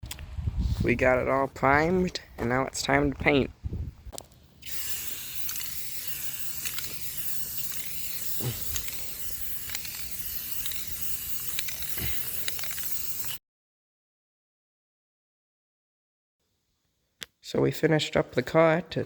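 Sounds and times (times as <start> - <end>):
paint spraying hiss: 4.6 - 13.4.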